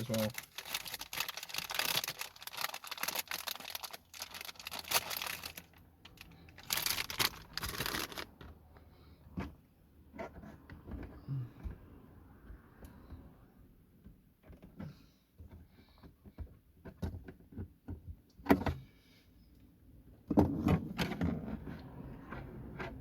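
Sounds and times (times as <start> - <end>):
plastic wrapper crinkling: 0.0 - 8.3.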